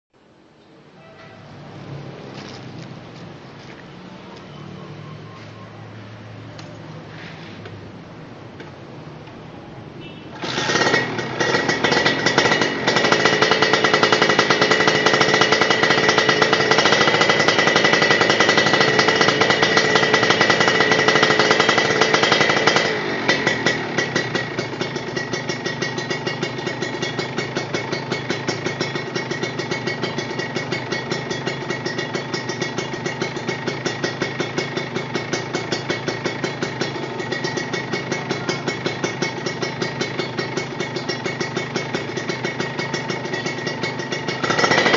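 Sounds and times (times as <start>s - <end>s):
engine revving through racing muffler: 10.4s - 24.2s, 44.3s - 44.9s.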